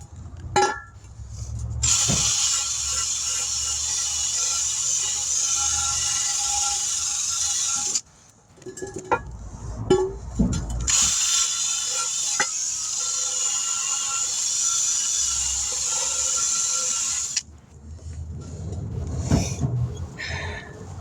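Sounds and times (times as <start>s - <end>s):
compressed air hissing: 1.8s - 8.0s, 10.9s - 17.4s.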